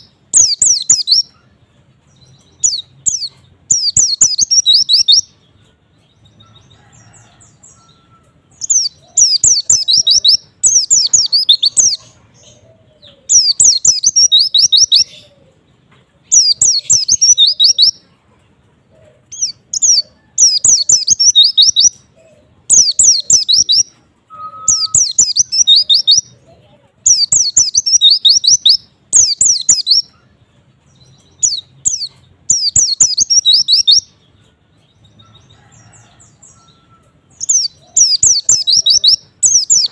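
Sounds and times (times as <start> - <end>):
white-eye twittering song: 2.2 - 5.4, 6.3 - 12.6, 16.4 - 18.0, 19.4 - 22.0, 22.7 - 26.3, 27.1 - 30.2, 31.0 - 34.1, 35.2 - 39.9.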